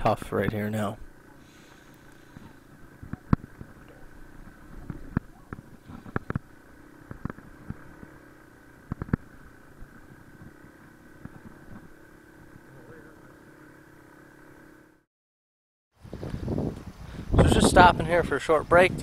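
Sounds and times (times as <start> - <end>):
motorcycle engine humming: 0.0 - 15.1, 16.0 - 19.0
motorcycle knocking over rocks: 2.3 - 12.6.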